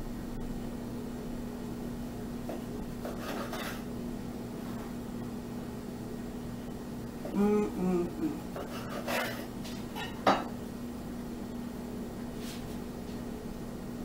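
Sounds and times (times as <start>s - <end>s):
low hum: 0.0s - 3.0s, 3.8s - 8.8s
knife sawing through bread: 3.0s - 3.9s, 8.5s - 9.5s.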